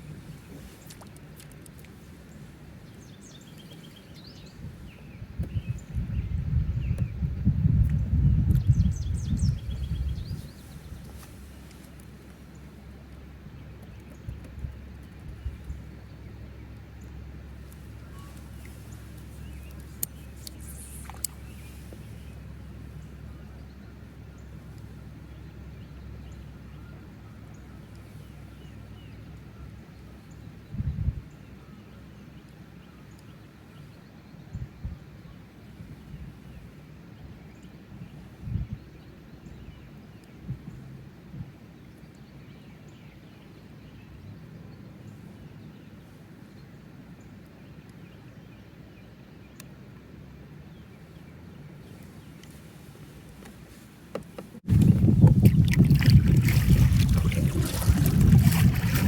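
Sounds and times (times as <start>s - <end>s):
wind rumbling on microphone: 0.0s - 16.1s, 30.4s - 31.4s, 34.4s - 41.6s, 54.5s - 59.0s
faint bird chirps: 18.0s - 22.4s.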